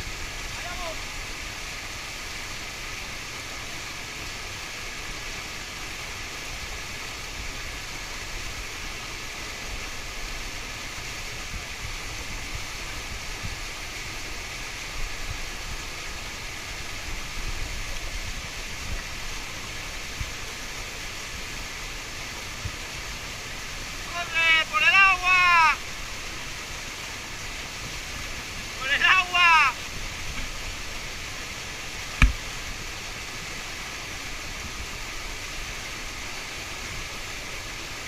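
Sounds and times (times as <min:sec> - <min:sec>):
waterfall rushing: 0:00.0 - 0:38.0
brief bumps: 0:32.2 - 0:32.4.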